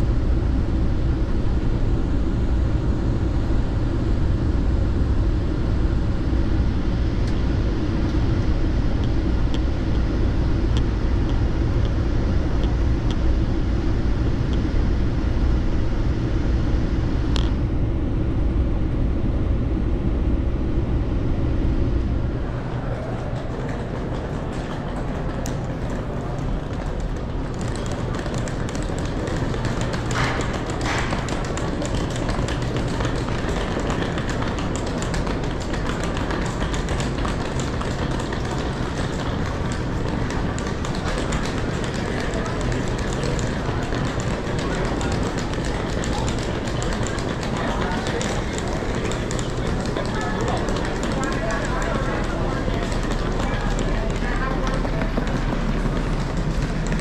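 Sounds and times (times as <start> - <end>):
station concourse hubbub: 0.0 - 57.0
train rumble inside coach: 0.0 - 57.0
footsteps: 22.3 - 57.0.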